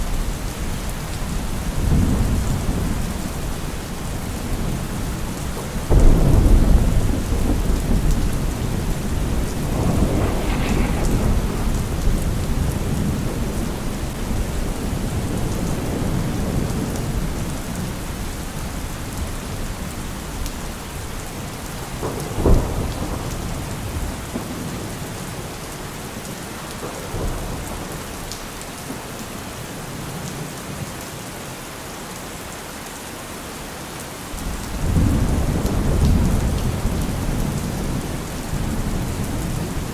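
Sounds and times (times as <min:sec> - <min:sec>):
heavy rain falling: 0:00.0 - 0:39.9
rolling thunder: 0:01.3 - 0:18.2, 0:21.0 - 0:25.4, 0:34.4 - 0:39.9
sharp thunderclap: 0:05.9 - 0:17.3, 0:21.9 - 0:24.8.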